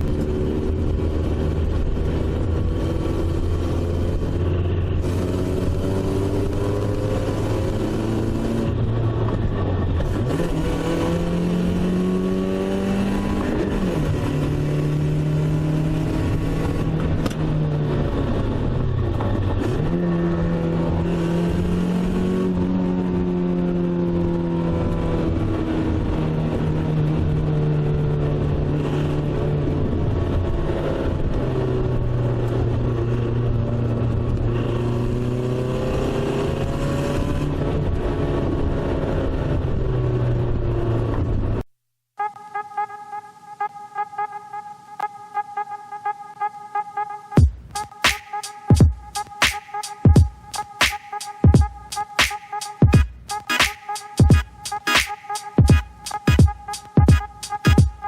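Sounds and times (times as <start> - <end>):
car engine hum while driving: 0.0 - 41.6.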